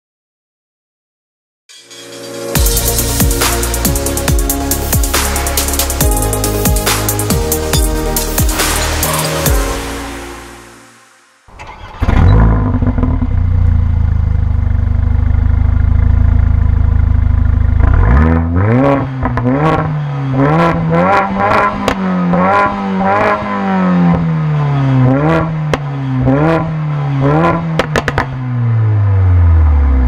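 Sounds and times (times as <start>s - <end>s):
car engine idling and revving: 2.6s - 10.6s, 11.5s - 30.0s
exhaust pops: 27.7s - 28.4s.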